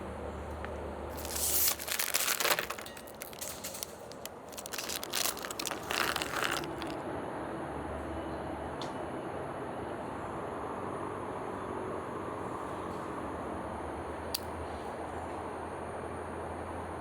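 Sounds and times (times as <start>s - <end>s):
plastic packaging crinkling: 1.1s - 7.0s.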